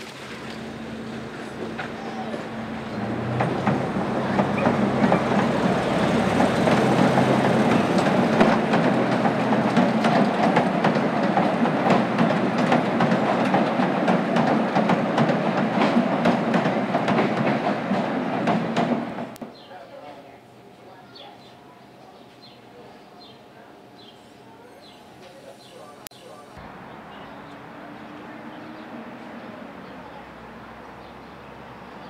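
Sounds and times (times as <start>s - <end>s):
train wheels rumbling and clicking: 0.1s - 19.5s.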